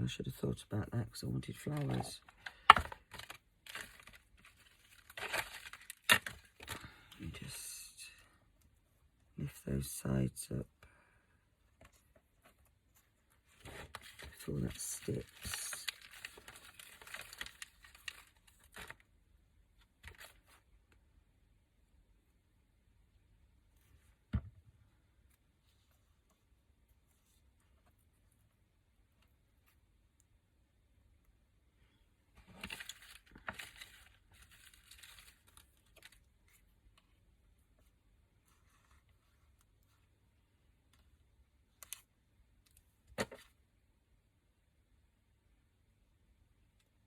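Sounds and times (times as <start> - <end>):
paper rustling and crinkling: 1.6 - 7.2, 13.4 - 19.1, 32.4 - 37.0.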